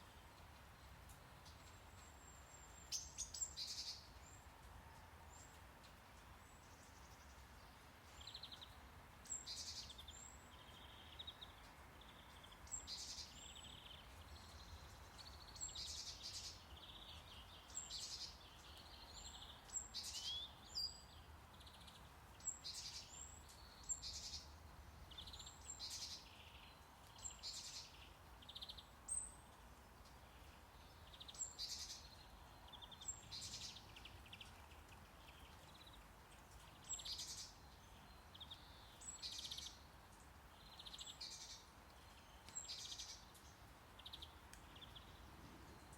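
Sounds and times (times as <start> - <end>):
low steady hiss: 0.0 - 45.9.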